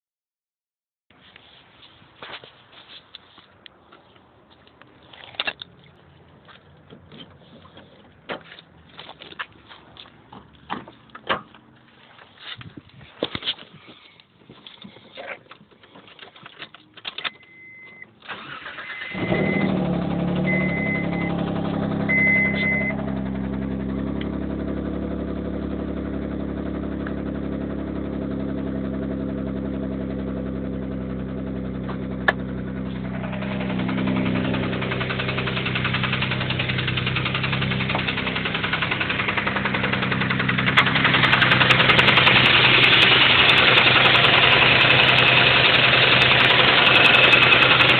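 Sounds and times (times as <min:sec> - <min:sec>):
car engine starting and idling: 0:16.8 - 0:47.9
short electronic beeps: 0:17.3 - 0:18.1, 0:18.8 - 0:19.8, 0:20.4 - 0:21.4, 0:22.1 - 0:23.0
engine knocking: 0:33.0 - 0:47.9.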